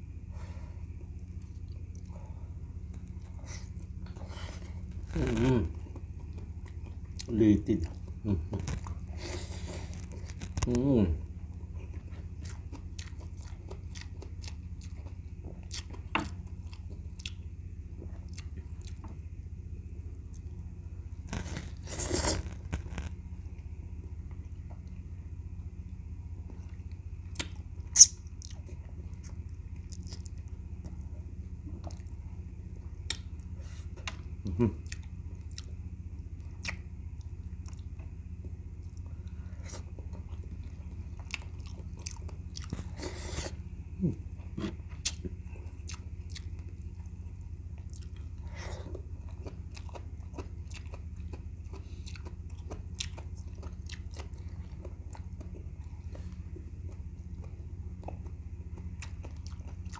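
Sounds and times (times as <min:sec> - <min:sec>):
steady low hum: 0:00.0 - 0:59.9
person chewing with wet smacks: 0:11.7 - 0:17.4, 0:18.0 - 0:19.3, 0:26.4 - 0:32.2, 0:32.8 - 0:39.1, 0:39.7 - 0:59.9.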